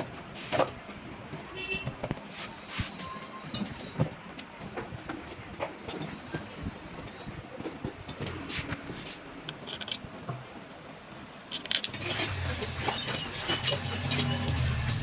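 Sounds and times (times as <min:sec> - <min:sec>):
metallic tool clinks: 0:03.2 - 0:04.4.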